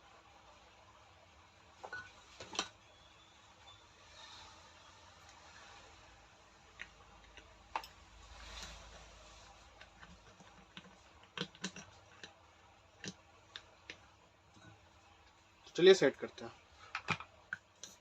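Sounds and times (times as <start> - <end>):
tool parts clicking and knocking: 9.8 - 12.4, 16.9 - 18.0.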